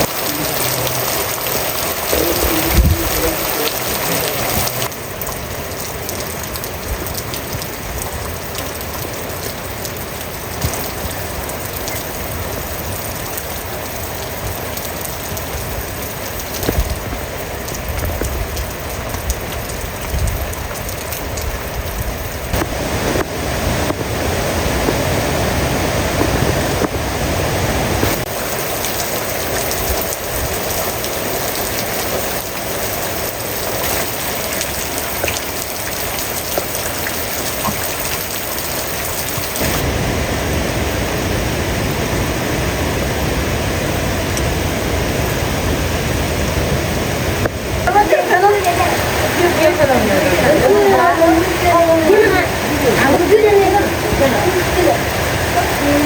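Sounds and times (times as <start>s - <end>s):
sharp raindrop hits: 0.0s - 27.1s, 27.8s - 42.3s
heavy rain falling: 0.0s - 56.0s.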